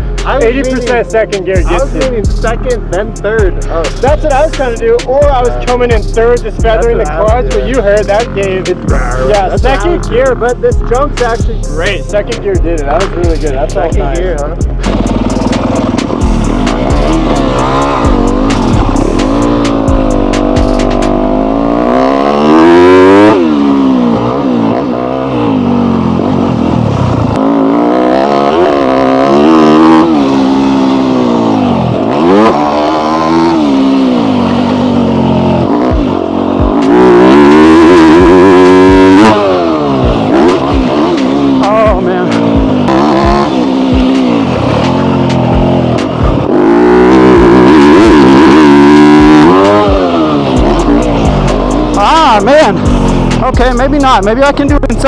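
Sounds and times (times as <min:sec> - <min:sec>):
dirt bike engine revving: 0:00.0 - 0:55.0
loud rushing noise: 0:39.1 - 0:54.0.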